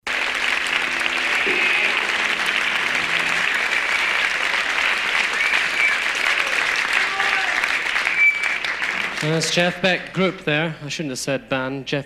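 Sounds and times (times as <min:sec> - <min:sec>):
audience applause: 0:00.0 - 0:10.2
faint held instrument note: 0:00.4 - 0:04.2.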